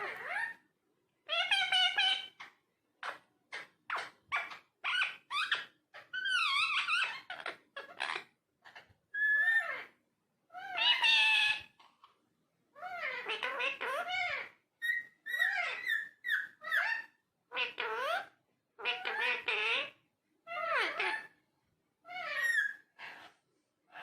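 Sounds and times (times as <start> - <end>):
parakeet talking: 0.0 - 0.6, 1.2 - 11.8, 12.8 - 21.4, 22.1 - 23.3.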